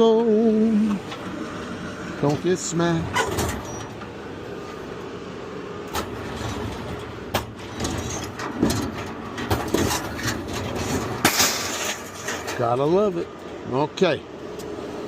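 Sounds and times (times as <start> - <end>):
scrap metal clanking: 3.1 - 4.1, 5.9 - 13.4.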